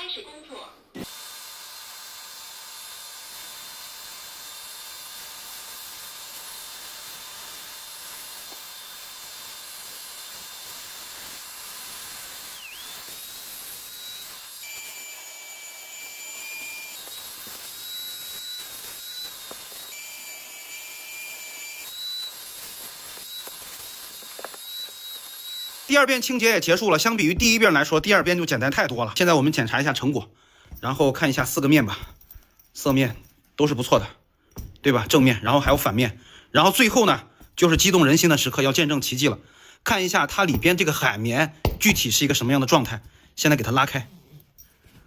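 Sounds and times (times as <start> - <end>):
suction motor hissing: 1.0 - 27.2.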